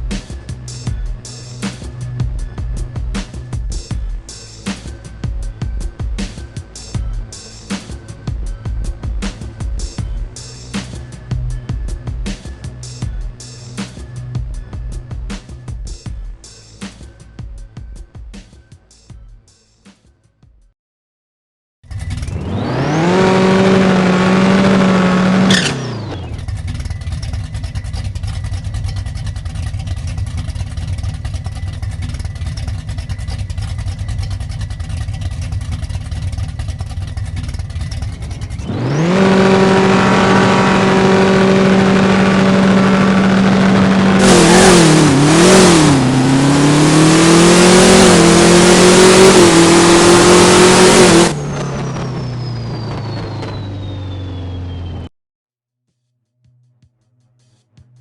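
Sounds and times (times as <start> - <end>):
drag car engine revving: 21.9 - 54.9.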